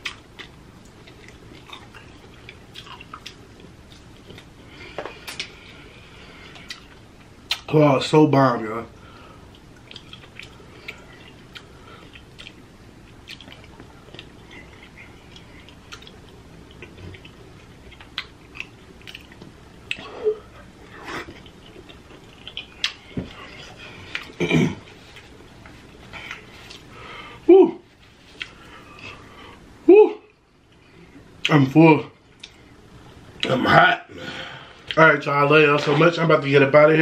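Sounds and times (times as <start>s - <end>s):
wet chewing: 0.0s - 4.5s, 9.5s - 20.1s, 20.7s - 24.4s.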